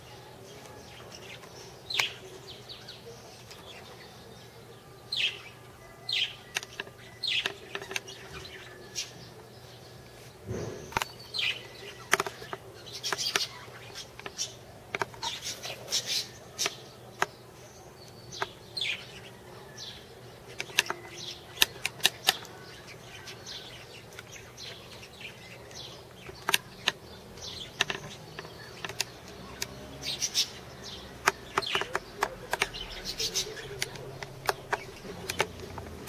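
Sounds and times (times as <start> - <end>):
birds chirping downward notes: 0.0 - 36.0
sharp clicks: 20.5 - 22.6, 25.7 - 36.0.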